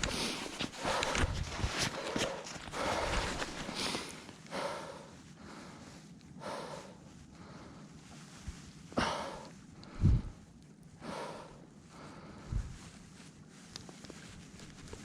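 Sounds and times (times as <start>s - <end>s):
person breathing out heavily: 0.0s - 7.9s, 9.0s - 10.4s, 11.0s - 12.8s.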